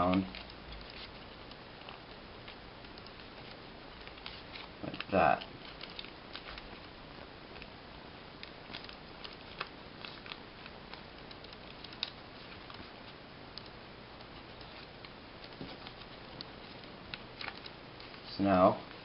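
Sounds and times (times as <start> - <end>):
paper crinkling and creasing: 0.0 - 7.7, 8.4 - 13.2, 14.2 - 18.3
faint steady hiss: 0.0 - 19.0.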